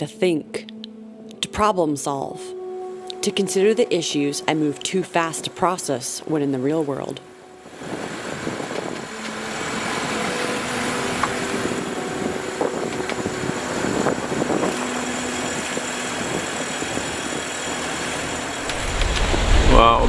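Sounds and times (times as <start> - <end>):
water rushing past yacht: 7.7 - 20.0
wind rushing: 18.2 - 20.0.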